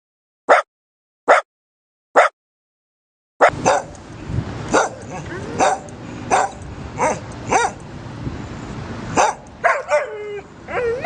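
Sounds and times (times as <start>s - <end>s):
dog barking: 0.5s - 0.7s, 1.3s - 1.5s, 3.4s - 3.9s, 4.7s - 7.8s, 9.2s - 10.2s.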